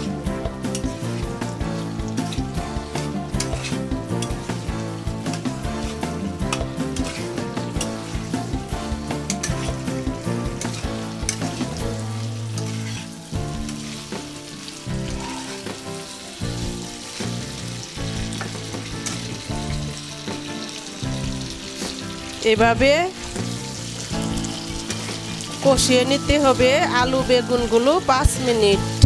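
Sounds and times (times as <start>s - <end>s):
vegetables sizzling in oil: 0.0s - 29.0s
spatula clicking and scraping pan: 0.5s - 15.8s, 18.1s - 19.8s.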